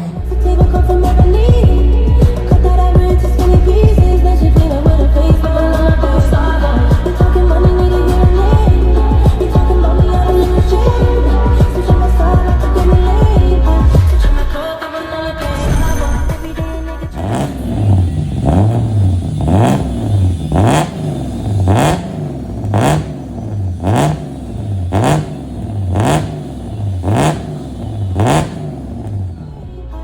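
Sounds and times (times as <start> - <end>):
car engine revving with exhaust crack: 17.1 - 29.7.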